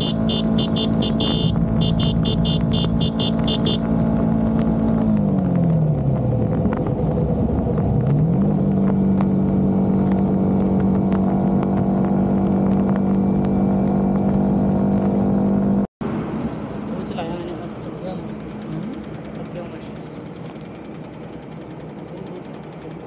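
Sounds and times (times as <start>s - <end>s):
motorcycle engine running: 0.0s - 15.8s
wind and road noise: 0.0s - 23.0s.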